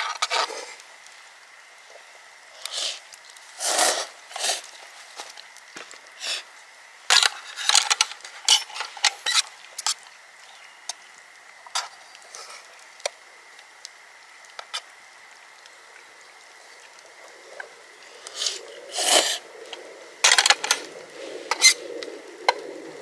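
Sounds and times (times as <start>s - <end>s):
utensils clattering on tableware: 8.4s - 9.0s.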